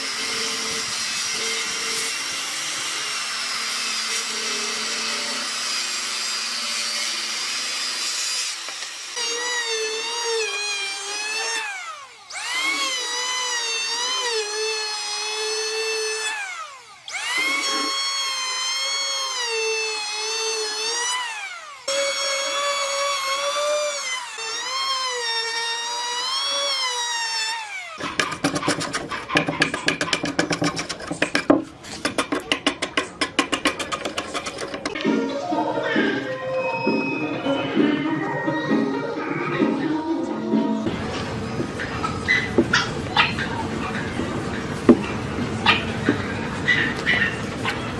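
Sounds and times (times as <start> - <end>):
power tool motor whine: 0.0 - 32.3
sharp knocks: 28.1 - 35.0.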